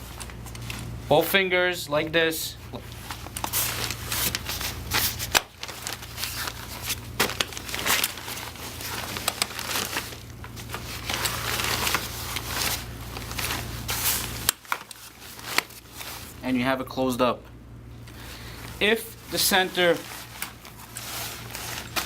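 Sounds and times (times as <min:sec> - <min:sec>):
steady low hum: 0:00.0 - 0:22.0
fabric rustling and crinkling: 0:02.8 - 0:16.4, 0:18.5 - 0:22.0.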